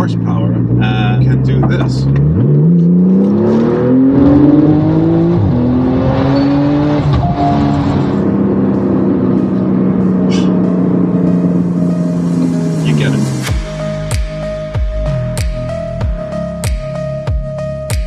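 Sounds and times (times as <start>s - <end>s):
car engine accelerating hard: 0.0s - 13.6s.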